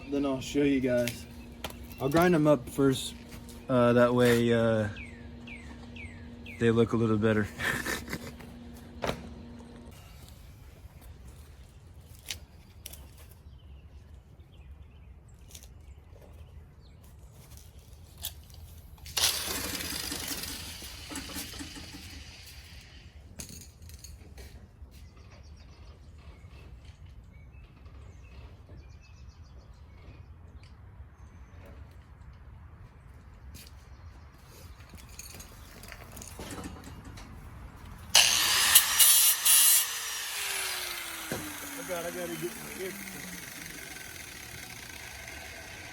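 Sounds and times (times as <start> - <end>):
low background hum: 0.0 - 45.9
angle grinder running: 0.1 - 10.4, 19.2 - 23.1, 38.1 - 45.9
tool handling clicks and knocks: 34.7 - 38.0.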